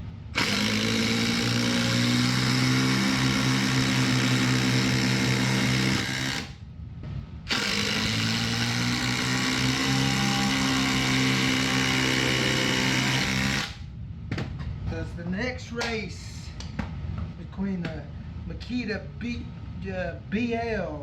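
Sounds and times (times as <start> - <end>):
impact drivers whining: 0.4 - 6.6.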